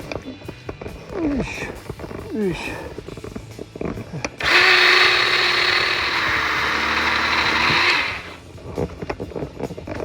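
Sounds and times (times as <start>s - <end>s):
electric chainsaw running: 4.4s - 8.4s.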